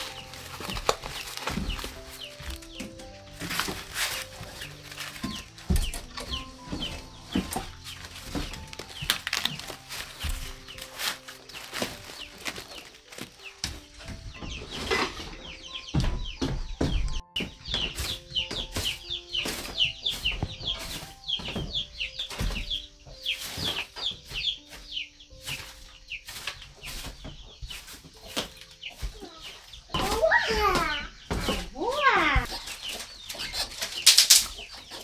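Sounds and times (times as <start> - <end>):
wings flapping: 0.0 - 14.2
chickens clucking and cheeping: 0.0 - 35.0
soft background music: 0.0 - 35.0.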